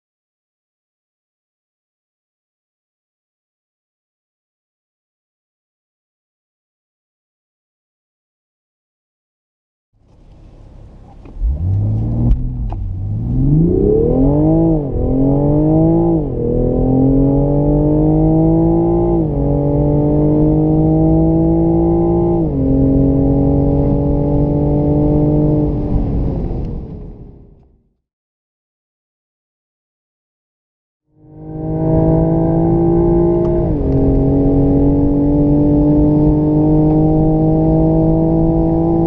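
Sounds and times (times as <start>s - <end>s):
car engine accelerating: 10.0s - 27.7s, 31.2s - 39.0s.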